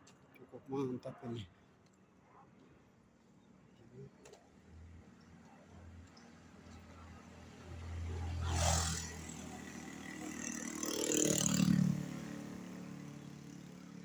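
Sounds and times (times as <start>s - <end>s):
vehicles passing on road: 4.2s - 14.0s.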